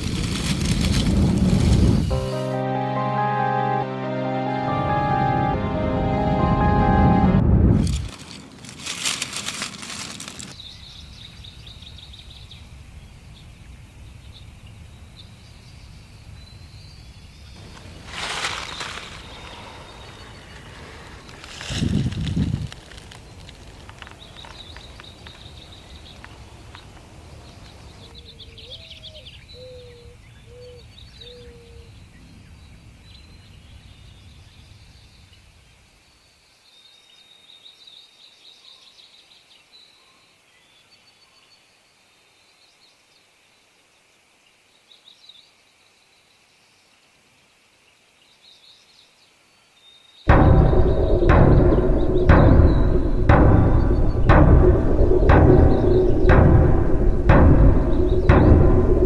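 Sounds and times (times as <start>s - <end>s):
low rumble: 4.8s - 10.5s, 50.3s - 59.0s
birds chirping and trilling: 9.6s - 43.1s, 48.2s - 59.0s.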